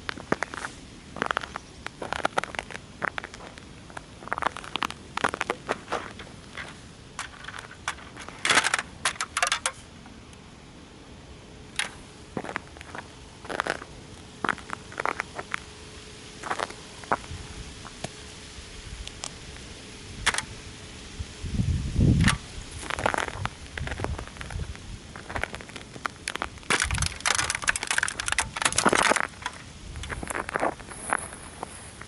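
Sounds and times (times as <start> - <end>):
toy car crushed under boots: 4.4 - 9.8, 20.3 - 20.5, 25.2 - 31.2
plastic parts cracking and snapping: 4.6 - 9.8, 20.2 - 20.5, 25.3 - 30.6.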